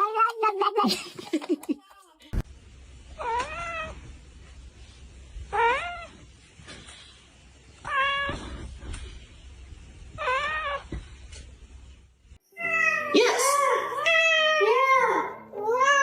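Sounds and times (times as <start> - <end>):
cat meowing: 3.2 - 4.0, 5.5 - 6.2, 7.8 - 8.6, 10.2 - 10.9, 12.6 - 16.0.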